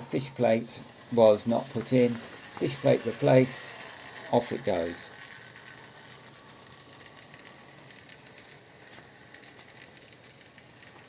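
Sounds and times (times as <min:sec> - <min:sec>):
model train motor whirr: 0:00.0 - 0:11.0
wheels ticking over rails: 0:00.0 - 0:11.0.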